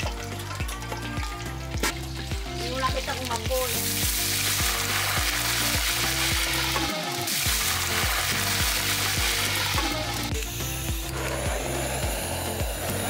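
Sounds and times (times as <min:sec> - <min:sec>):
meat deep-frying in hot oil: 0:00.0 - 0:13.0.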